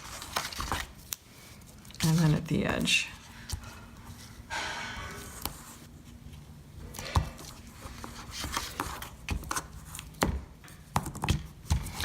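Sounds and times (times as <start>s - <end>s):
paper rustling: 0.0s - 4.4s, 5.1s - 10.2s.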